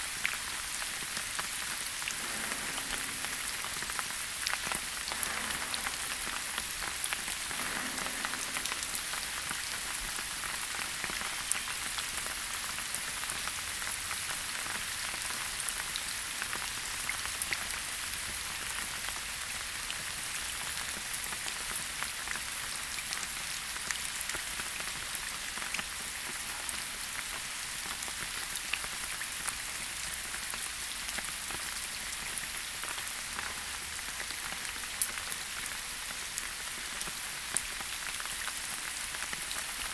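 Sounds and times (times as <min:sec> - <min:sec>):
steady rainfall hiss: 0:00.0 - 0:11.8.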